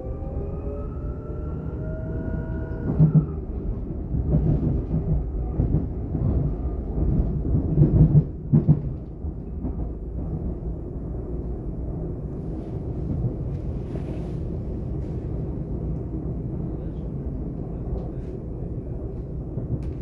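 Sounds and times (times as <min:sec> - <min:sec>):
train rolling rumble: 0:00.0 - 0:20.0.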